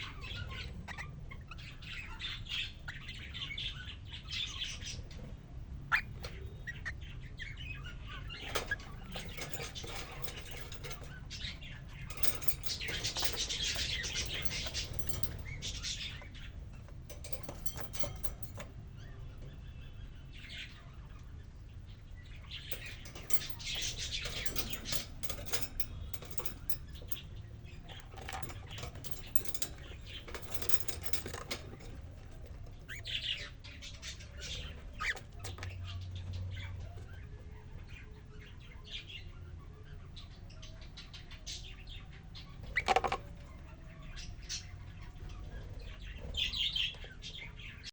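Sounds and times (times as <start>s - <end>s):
steady low hum: 4.1s - 38.4s.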